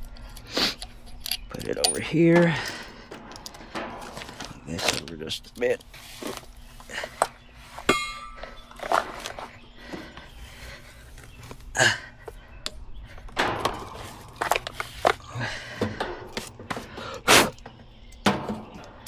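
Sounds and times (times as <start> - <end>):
metal tools knocking and clicking: 1.1 - 5.1, 13.2 - 16.9
metallic clink: 7.7 - 9.4.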